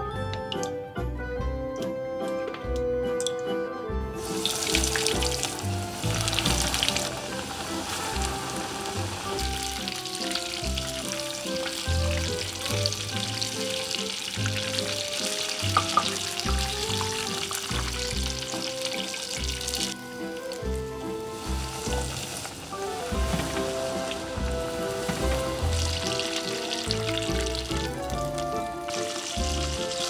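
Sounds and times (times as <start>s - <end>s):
background music: 0.0s - 30.0s
chicken deep-frying in oil: 4.2s - 30.0s.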